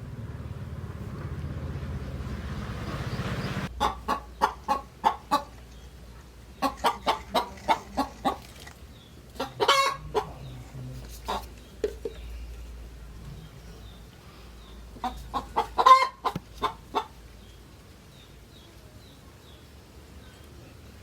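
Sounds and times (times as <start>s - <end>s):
low hum: 0.0s - 3.8s
chicken clucking: 3.8s - 5.6s, 6.5s - 8.5s, 9.4s - 12.3s, 15.0s - 17.2s
chicken squawk: 9.4s - 10.4s, 15.3s - 17.1s.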